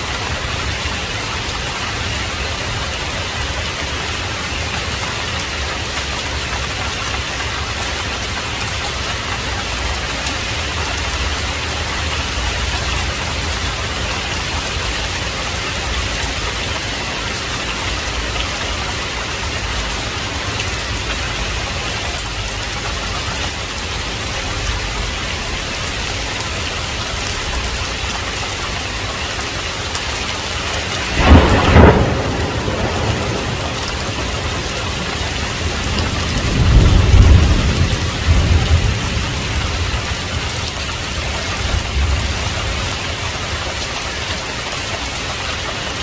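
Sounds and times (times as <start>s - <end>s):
heavy rain: 0.0s - 46.0s
loud thunderclap: 30.6s - 40.6s.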